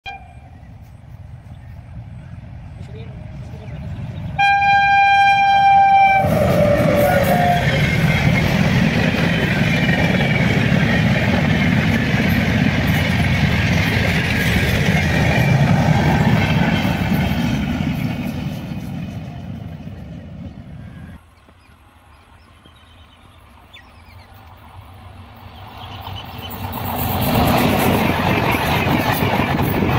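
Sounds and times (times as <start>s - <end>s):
train coaches passing: 0.1s - 29.9s
locomotive horn: 4.4s - 8.0s.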